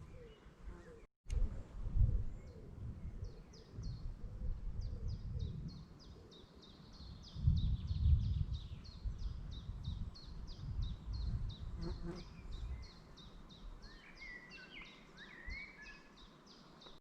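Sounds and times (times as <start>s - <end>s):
songbird singing: 0.0s - 1.1s, 2.1s - 17.0s.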